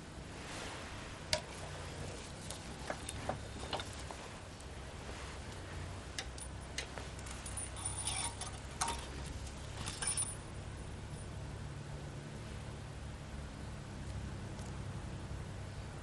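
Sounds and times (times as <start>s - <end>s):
low steady hum: 0.0s - 16.0s
light metallic clicks and clinks: 1.3s - 4.7s, 5.5s - 11.4s.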